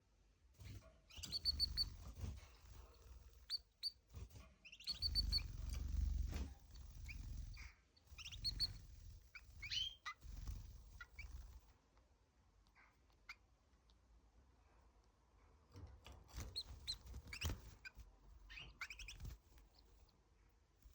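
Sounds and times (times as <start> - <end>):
canary singing: 0.6 - 11.6, 16.3 - 20.1.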